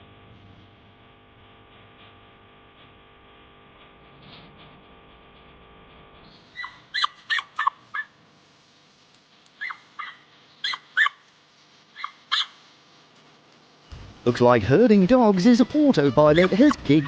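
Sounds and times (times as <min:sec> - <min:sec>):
faint steady hum: 0:00.0 - 0:17.0
sharp high animal calls: 0:06.4 - 0:08.2, 0:09.6 - 0:11.3, 0:11.9 - 0:12.6, 0:15.2 - 0:17.0.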